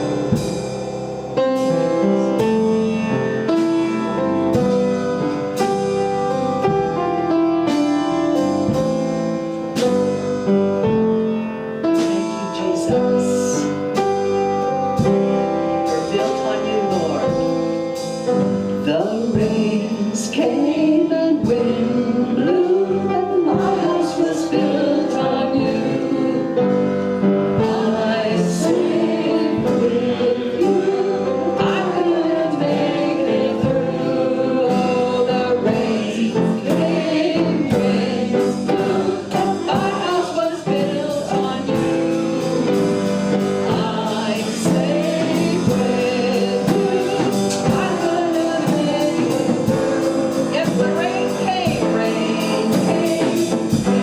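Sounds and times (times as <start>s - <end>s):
keyboard guitar and drums: 0.0s - 54.0s
group singing gospel song: 14.9s - 54.0s.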